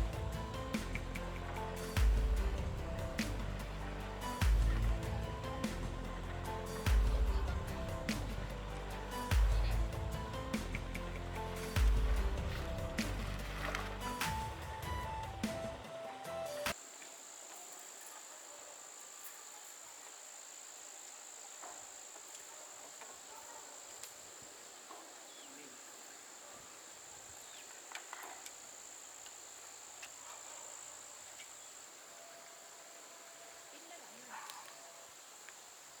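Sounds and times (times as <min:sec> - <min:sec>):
insects droning: 0:16.7 - 0:36.0.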